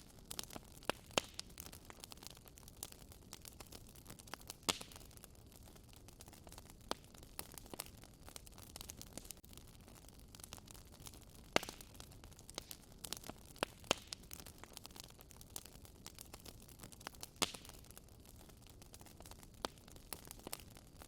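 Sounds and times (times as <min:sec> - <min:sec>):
low steady fire hiss: 0:00.0 - 0:21.0
wood fire crackling and popping: 0:00.0 - 0:21.0.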